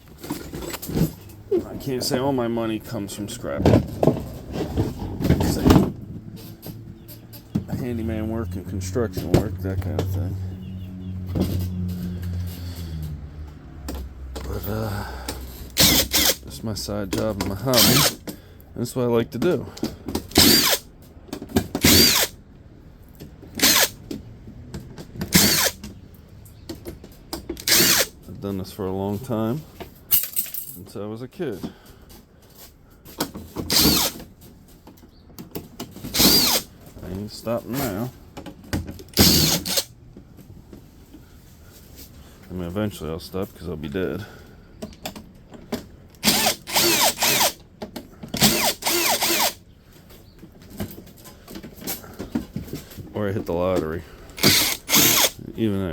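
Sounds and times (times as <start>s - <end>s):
power drill whirring: 15.7s - 16.4s, 17.7s - 18.2s, 20.3s - 20.9s, 21.8s - 22.4s, 23.5s - 24.0s, 25.3s - 25.8s, 27.6s - 28.1s, 33.7s - 34.2s, 36.1s - 36.7s, 39.1s - 39.9s, 46.2s - 47.6s, 48.4s - 49.6s, 54.4s - 55.4s.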